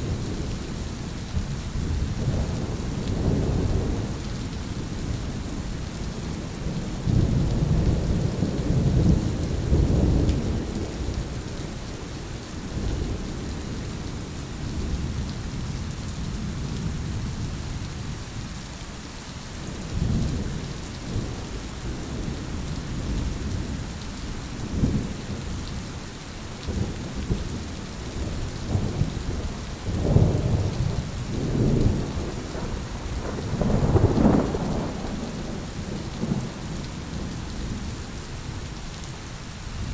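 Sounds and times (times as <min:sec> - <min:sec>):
rain hissing: 0:00.0 - 0:39.9
thunder rolling: 0:28.2 - 0:37.3.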